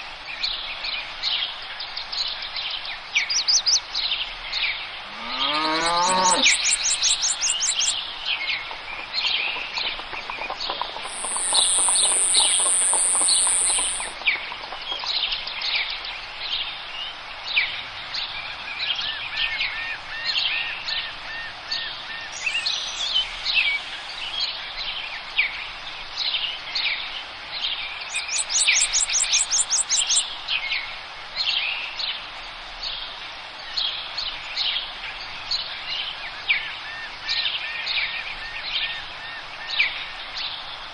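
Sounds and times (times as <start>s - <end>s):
birds chirping and whistling: 11.1s - 14.2s
high buzzing bird trill: 11.1s - 14.2s
rapid high bird trills: 11.1s - 14.2s.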